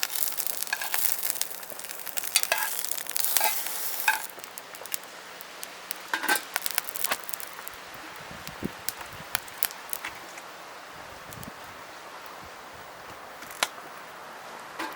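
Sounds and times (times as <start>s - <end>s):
utensil scraping and clinking on pan: 0.0s - 4.3s
food sizzling in a frying pan: 0.0s - 13.6s.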